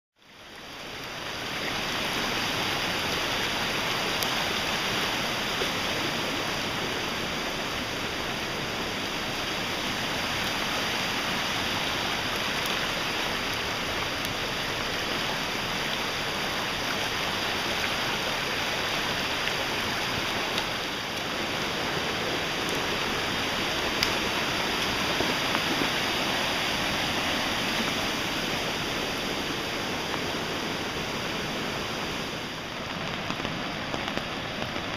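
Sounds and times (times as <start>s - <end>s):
floodwater rushing: 0.2s - 34.9s.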